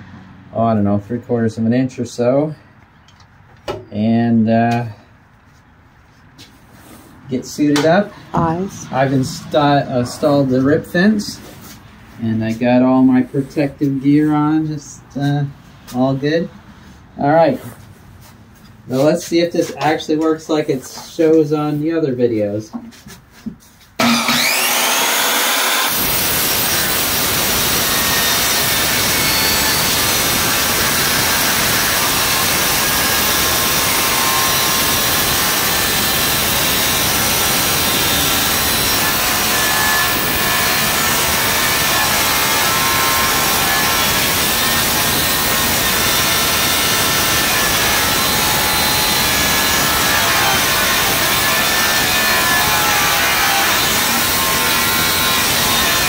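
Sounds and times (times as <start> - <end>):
circular saw grinding through metal: 24.0 - 56.0.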